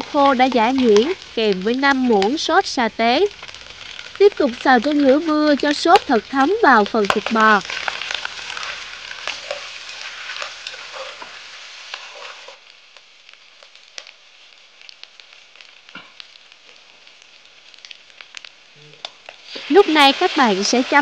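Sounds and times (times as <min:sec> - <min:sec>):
meat sizzling: 0:00.0 - 0:21.0
pops and crackles: 0:00.0 - 0:21.0
utensil stirring and scraping pot: 0:07.0 - 0:12.6, 0:19.2 - 0:21.0.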